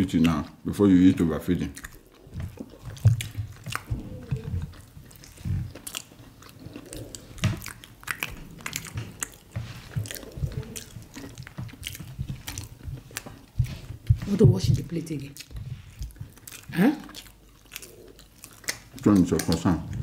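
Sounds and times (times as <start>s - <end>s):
chewing and lip smacking: 0.0s - 20.0s
mouth clicks: 1.5s - 14.2s.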